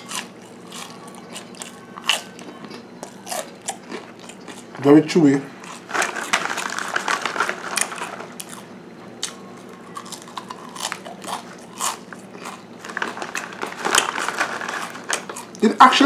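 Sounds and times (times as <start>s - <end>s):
rice cracker crunching: 0.0s - 4.9s, 5.6s - 15.8s.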